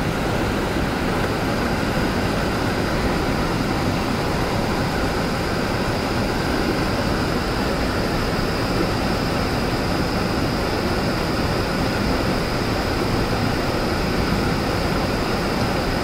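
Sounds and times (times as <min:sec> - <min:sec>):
waterfall pouring into pool: 0:00.0 - 0:16.0.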